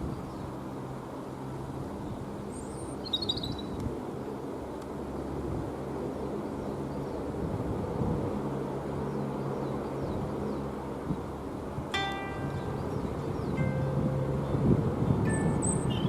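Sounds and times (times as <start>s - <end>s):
bird chirp: 2.5s - 3.8s, 12.0s - 16.0s.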